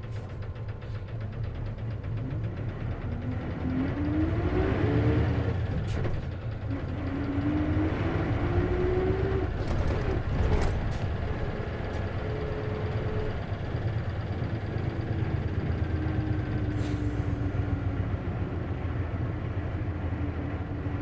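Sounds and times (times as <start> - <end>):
bus diesel engine rumble: 0.0 - 21.0.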